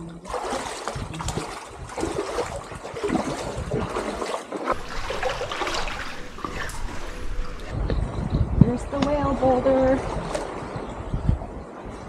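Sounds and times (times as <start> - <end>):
seawater sloshing and trickling: 0.0 - 7.8
splashes of wading: 0.0 - 7.9, 9.1 - 11.0.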